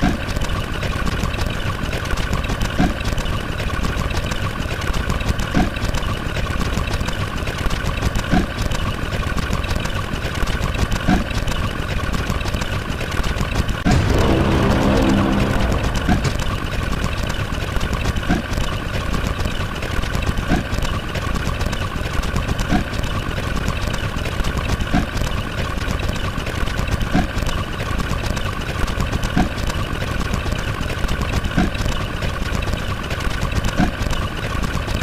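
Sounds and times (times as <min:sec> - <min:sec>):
engine idling rumble: 0:13.9 - 0:17.3.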